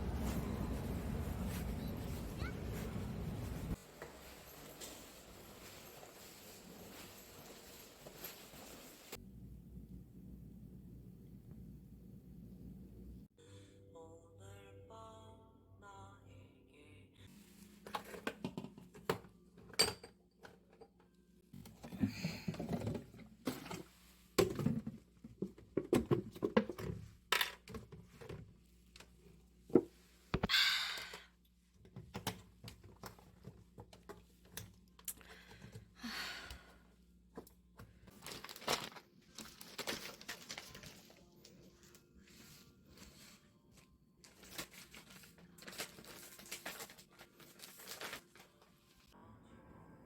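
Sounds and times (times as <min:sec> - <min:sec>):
packaging rustling and crinkling: 0:38.1 - 0:41.4, 0:44.2 - 0:48.8.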